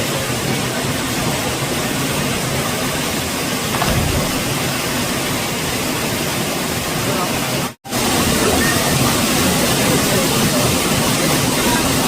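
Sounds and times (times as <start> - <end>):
waterfall roaring: 0.0 - 12.0
low thud: 3.7 - 5.2.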